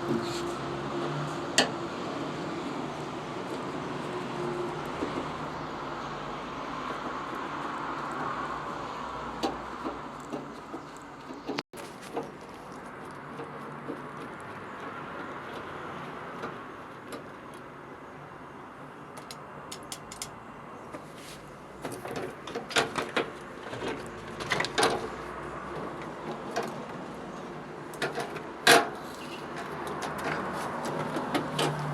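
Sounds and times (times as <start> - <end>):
knocks and clicks of handling: 19.2 - 21.0.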